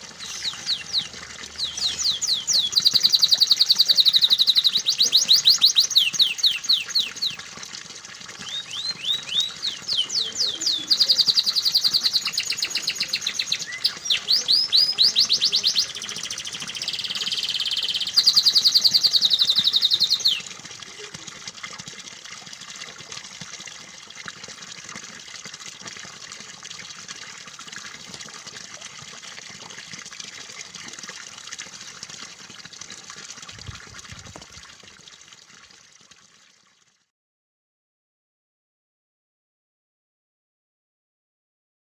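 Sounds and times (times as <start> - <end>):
water trickling: 0.0 - 37.1
canary singing trills: 0.2 - 7.4, 8.4 - 20.4.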